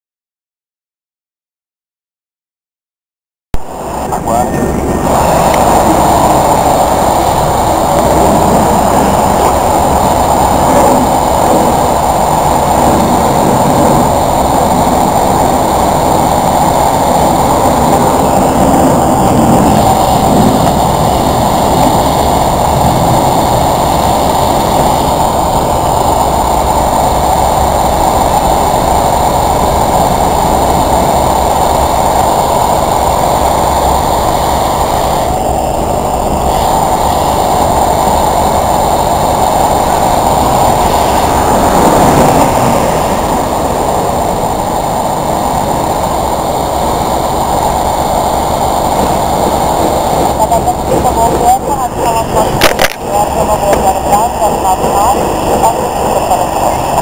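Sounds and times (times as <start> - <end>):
jet engines at takeoff: 3.6 - 57.0.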